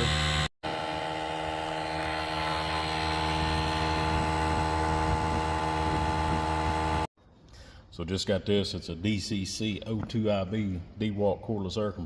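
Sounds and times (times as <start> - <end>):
air compressor droning hum: 0.0 - 7.1.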